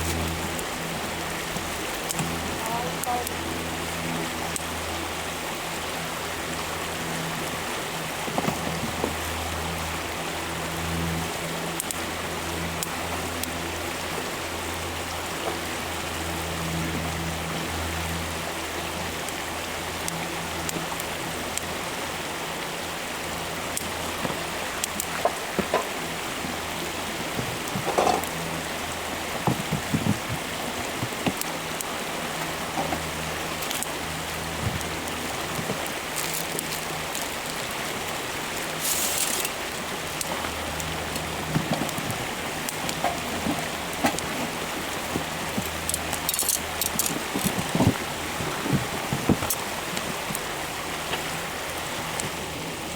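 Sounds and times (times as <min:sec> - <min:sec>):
campfire crackling: 0:00.0 - 0:52.9
short hiss: 0:38.8 - 0:39.5.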